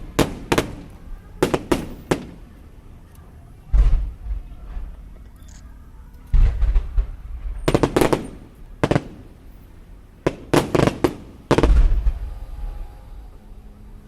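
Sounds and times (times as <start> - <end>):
fireworks exploding: 0.0 - 2.8, 3.6 - 5.2, 6.3 - 13.6
deep firework boom: 3.7 - 5.1, 6.3 - 9.4, 10.3 - 13.5.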